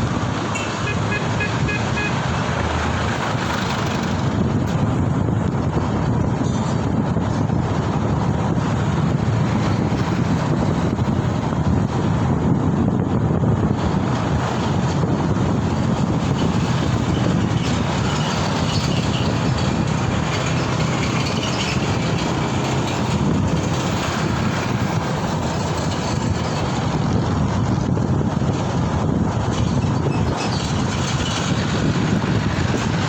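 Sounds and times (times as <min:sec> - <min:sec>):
motorcycle road noise: 0:00.0 - 0:33.0
wind rush: 0:00.0 - 0:33.0.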